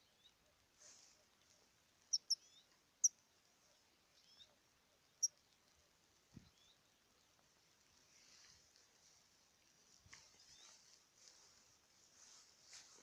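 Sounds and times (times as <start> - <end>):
finch chirping: 2.1 - 2.6.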